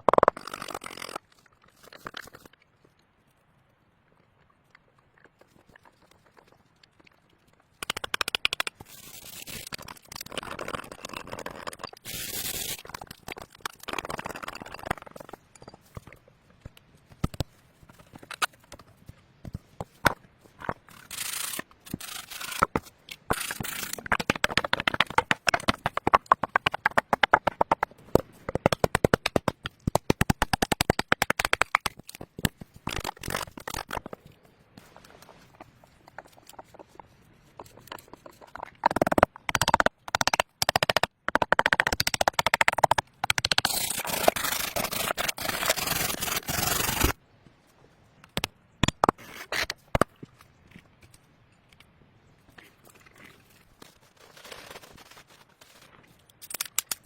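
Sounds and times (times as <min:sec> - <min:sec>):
scraping and crackling: 0:42.4 - 0:47.2, 0:52.5 - 0:57.0.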